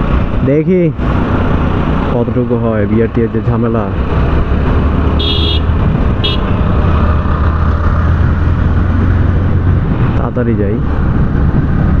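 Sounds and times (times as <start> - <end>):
road and wind noise: 0.0 - 12.0
high-pitched horn beeps: 5.2 - 6.5.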